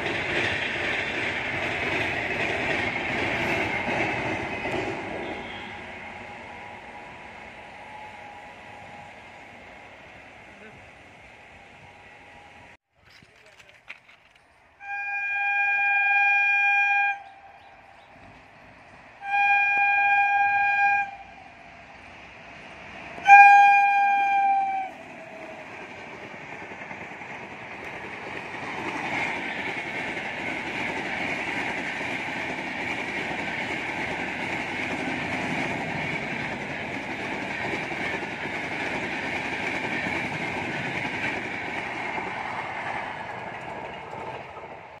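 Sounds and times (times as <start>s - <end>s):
passenger coaches rumbling past: 0.0s - 12.8s, 13.5s - 45.0s
locomotive horn blasts: 5.2s - 6.0s, 14.8s - 17.6s, 19.2s - 21.5s, 23.2s - 25.0s.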